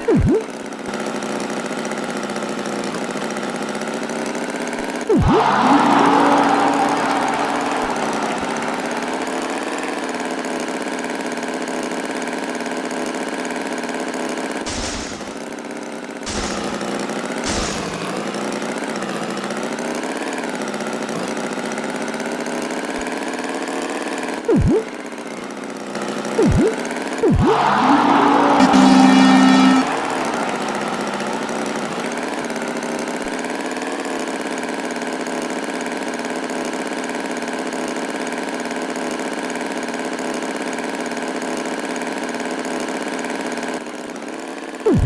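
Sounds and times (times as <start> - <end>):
short noisy bursts: 14.7 - 15.5, 16.3 - 18.4.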